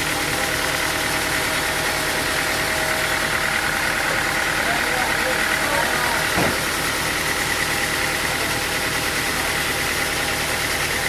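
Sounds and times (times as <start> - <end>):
engine idling: 0.0 - 11.0
brief thump: 6.4 - 6.6.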